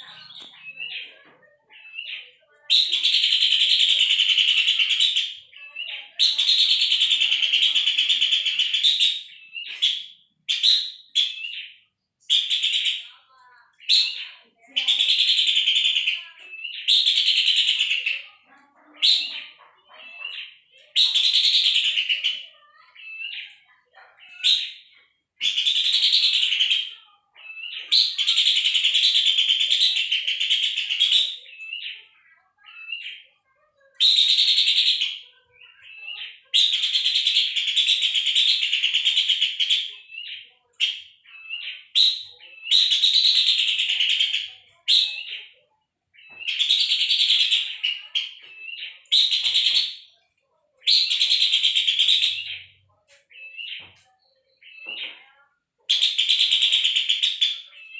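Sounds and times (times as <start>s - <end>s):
bird chattering trills: 50.8s - 53.9s.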